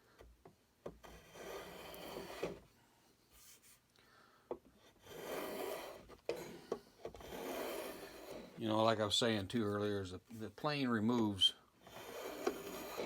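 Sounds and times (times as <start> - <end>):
hand plane shaving wood: 1.0 - 2.6, 5.0 - 8.7, 11.8 - 13.0.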